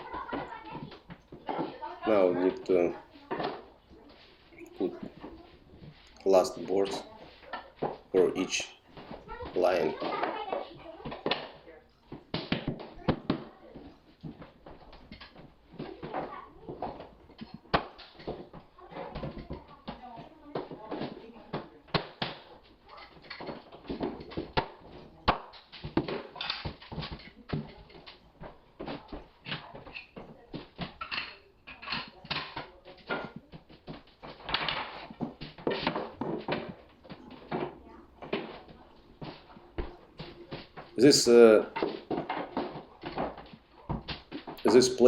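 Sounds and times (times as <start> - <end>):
wooden floorboards knocking and clattering: 8.9 - 41.0, 41.6 - 45.0
wooden boards knocking and clicking: 28.8 - 38.6.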